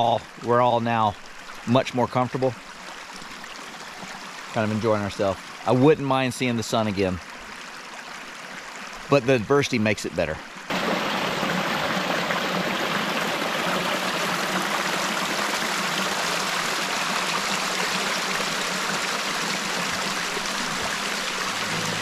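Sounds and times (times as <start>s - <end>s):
river water rushing: 10.7s - 22.0s.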